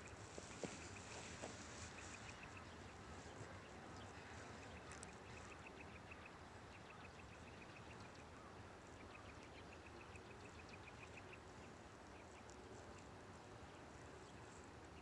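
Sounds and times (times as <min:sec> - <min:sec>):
faint background hiss: 0:00.0 - 0:15.0.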